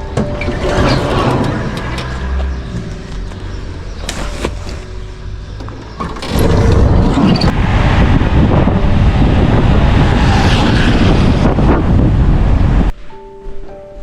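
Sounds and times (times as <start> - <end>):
vehicle engine rumbling: 0.0 - 12.9
wind buffeting microphone: 6.0 - 12.9.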